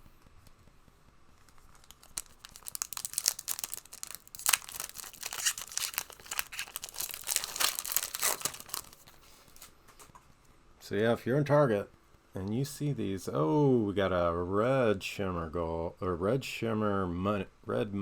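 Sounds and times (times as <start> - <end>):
wrapper being torn and crinkled: 1.4 - 9.7.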